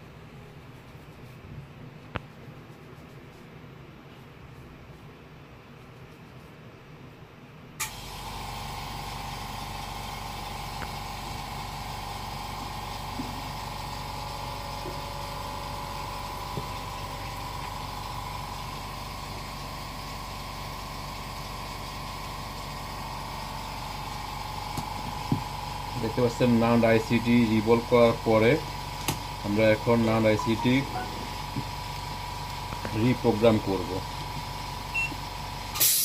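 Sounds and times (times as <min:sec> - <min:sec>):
low mains hum: 0:00.0 - 0:35.8
hot air blower whirring hiss: 0:07.8 - 0:36.0.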